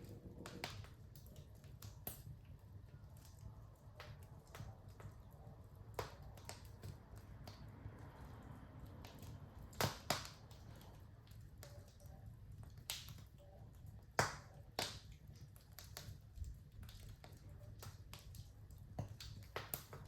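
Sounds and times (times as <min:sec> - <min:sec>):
faint low rumble: 0:00.0 - 0:14.1
wood fire crackling: 0:00.0 - 0:20.0.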